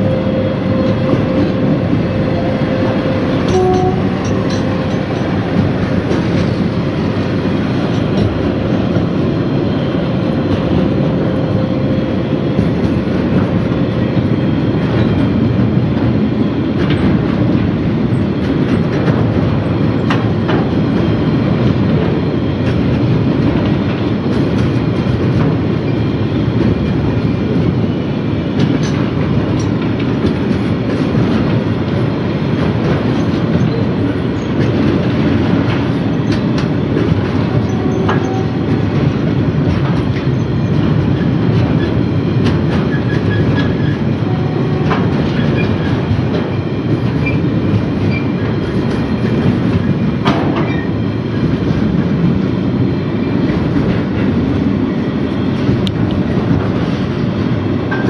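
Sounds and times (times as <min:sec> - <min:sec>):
train wheel squeals: 0:00.0 - 0:07.2, 0:32.8 - 0:39.2, 0:39.9 - 0:51.5
train wagons rumbling past: 0:00.0 - 0:58.0
train wheel clicks: 0:02.8 - 0:09.2, 0:28.6 - 0:52.3, 0:55.5 - 0:57.2.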